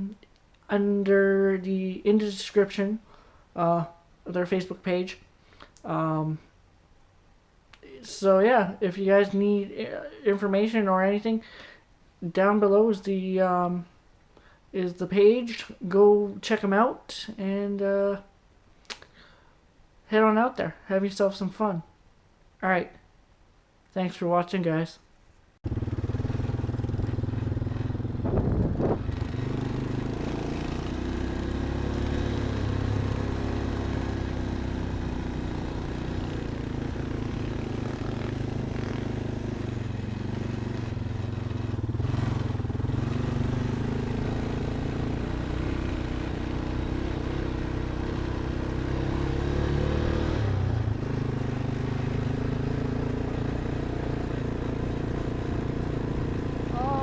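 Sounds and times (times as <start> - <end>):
off-road vehicle engine driving: 25.6 - 57.0.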